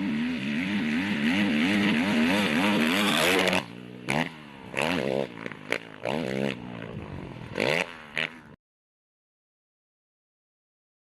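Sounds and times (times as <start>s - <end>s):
motocross bike engine revving: 0.0s - 8.6s.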